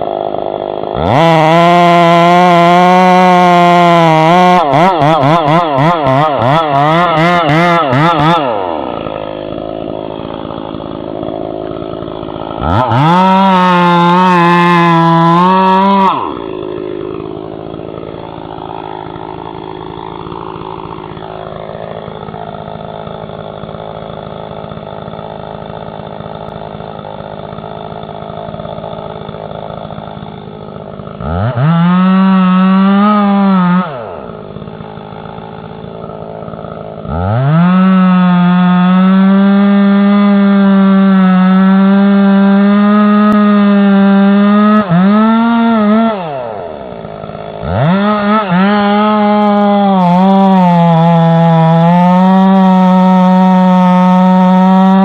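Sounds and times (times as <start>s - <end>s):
chainsaw engine revving: 0.0s - 55.0s.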